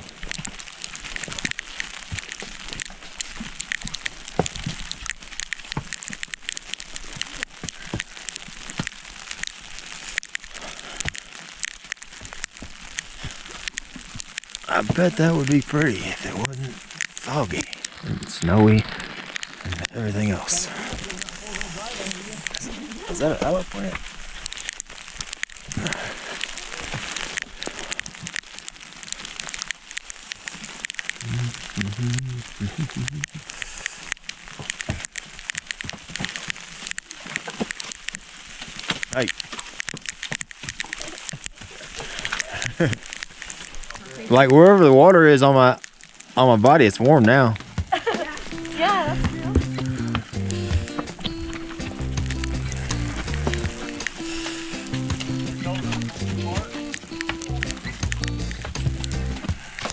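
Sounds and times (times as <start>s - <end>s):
snow and rain on rain gear: 0.0s - 59.9s
soft low thumps: 31.2s - 33.4s, 47.6s - 54.2s, 57.4s - 59.7s.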